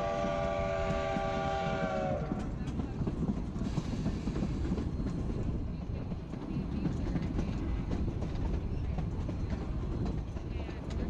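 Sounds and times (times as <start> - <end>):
train rumbling along track: 0.0 - 11.0
wheels clicking over rail joints: 2.2 - 11.0.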